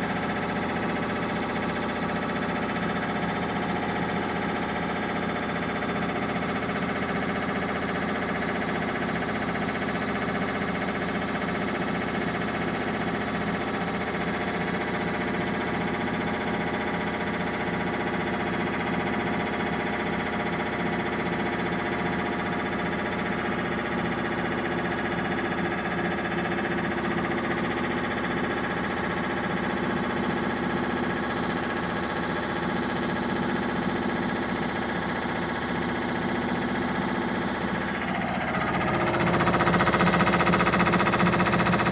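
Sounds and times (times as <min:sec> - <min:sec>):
washing machine spinning: 0:22.4 - 0:41.9.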